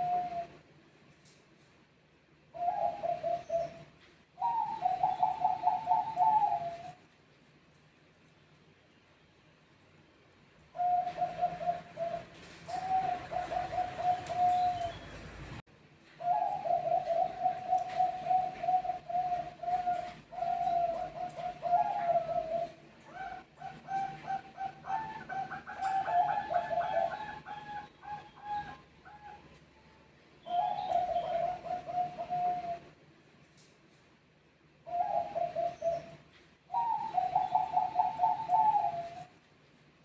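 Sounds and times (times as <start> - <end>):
doves cooing: 0.0 - 0.6, 2.5 - 7.0, 10.7 - 15.6, 16.2 - 29.6, 30.4 - 33.0, 34.8 - 39.4
higher-pitched dove cooing: 0.0 - 0.6, 2.5 - 7.0, 10.7 - 15.3, 16.2 - 29.6, 30.4 - 33.0, 34.8 - 39.4.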